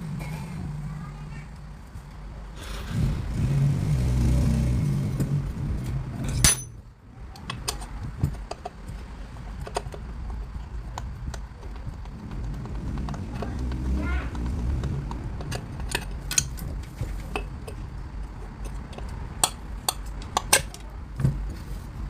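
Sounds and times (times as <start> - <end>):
vehicle engine running: 0.0 - 20.4
clicks and taps on metal: 17.3 - 20.9.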